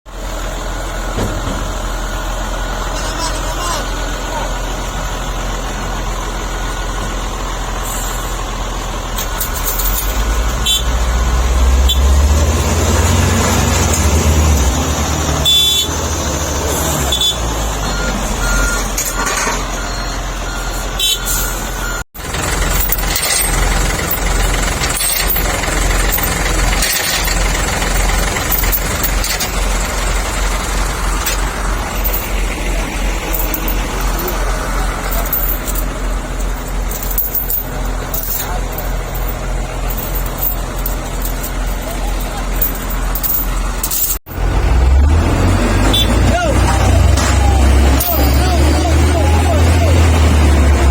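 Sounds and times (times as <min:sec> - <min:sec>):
truck engine under load: 0:00.1 - 0:50.9
knocks and rattles: 0:01.2 - 0:01.8, 0:22.2 - 0:44.2.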